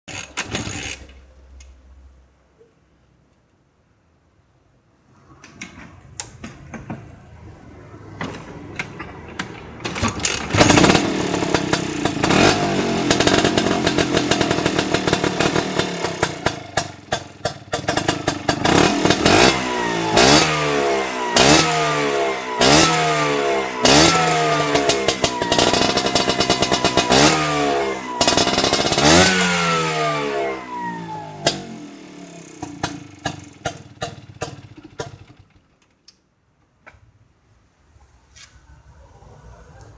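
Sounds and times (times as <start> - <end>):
motorcycle engine revving: 9.3 - 35.6.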